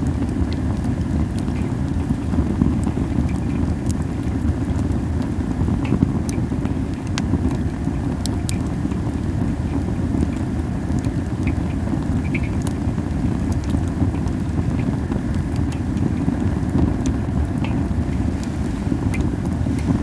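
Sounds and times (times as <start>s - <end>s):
campfire crackling with sharp pops: 0.0s - 20.0s
low rumble of flame: 0.0s - 20.0s
wind on microphone: 0.0s - 20.0s.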